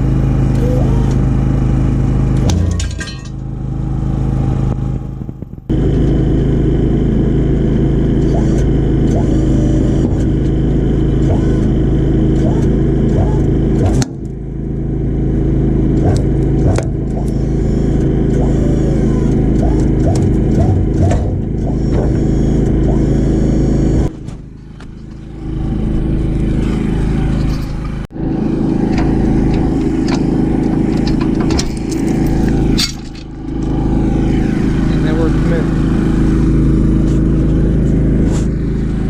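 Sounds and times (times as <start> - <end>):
vehicle engine running: 0.0 - 39.0.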